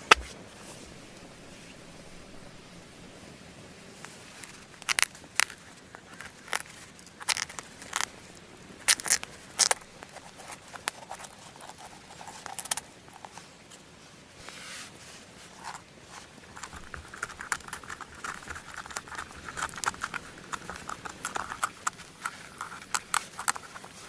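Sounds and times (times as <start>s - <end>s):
dry leaves and sticks crackling: 4.0s - 14.0s, 15.6s - 24.0s.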